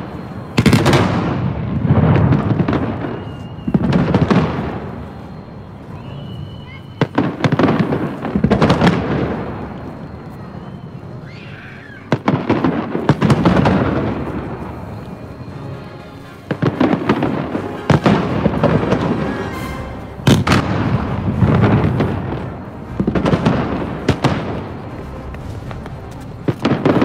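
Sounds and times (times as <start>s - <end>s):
fireworks bursting: 0.0s - 27.0s
rolling rumble of echoes: 12.0s - 27.0s.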